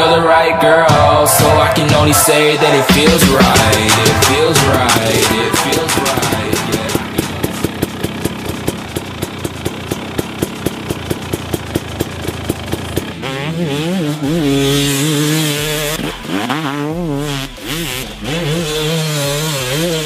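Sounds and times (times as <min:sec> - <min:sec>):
motorcycle engine revving: 0:00.0 - 0:20.0
regular thumping beat: 0:00.8 - 0:10.0.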